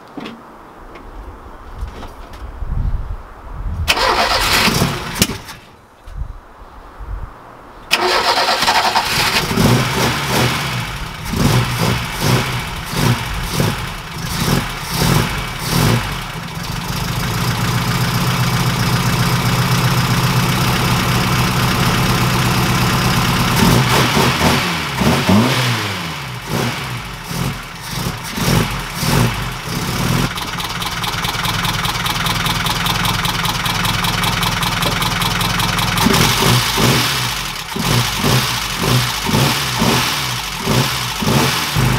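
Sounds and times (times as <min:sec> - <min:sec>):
car engine revving and idling: 0:08.1 - 0:41.9.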